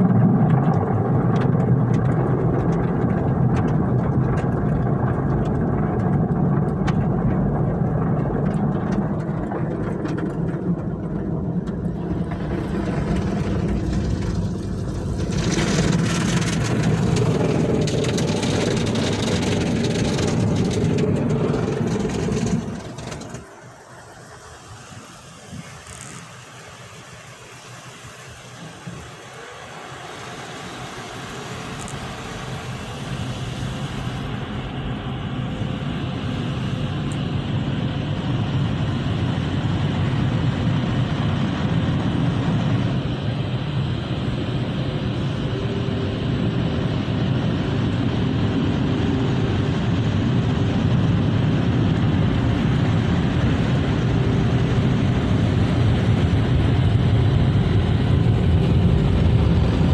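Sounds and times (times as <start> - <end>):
motor running: 0.0 - 23.5.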